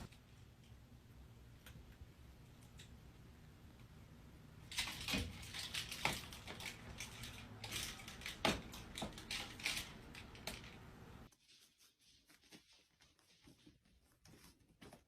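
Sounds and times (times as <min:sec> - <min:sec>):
rustling: 0:04.6 - 0:15.0.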